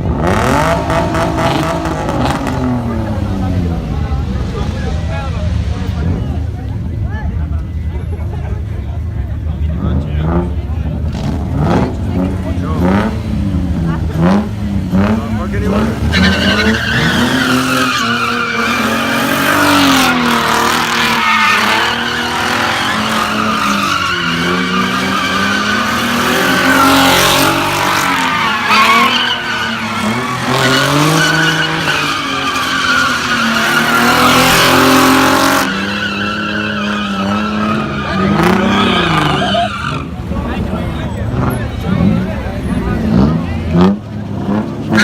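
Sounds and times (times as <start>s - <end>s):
car engine revving: 0.0s - 7.6s, 8.9s - 45.0s
tires squealing: 0.0s - 8.4s, 9.0s - 45.0s.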